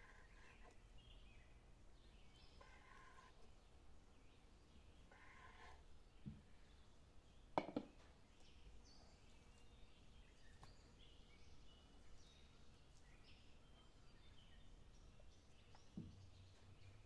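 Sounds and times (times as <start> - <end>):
faint birds chirping: 0.0 - 17.0
sharp knocks: 7.6 - 7.9.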